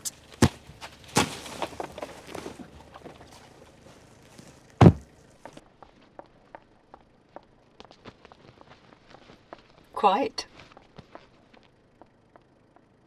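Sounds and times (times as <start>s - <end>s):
rustling and light knocks: 0.0s - 6.7s, 7.4s - 12.1s
car door thud: 4.8s - 5.1s.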